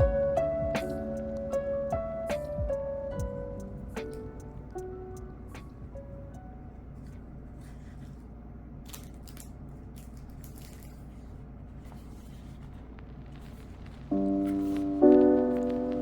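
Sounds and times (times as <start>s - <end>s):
low hum: 0.0s - 8.8s
paper and packaging rustling: 7.0s - 16.0s.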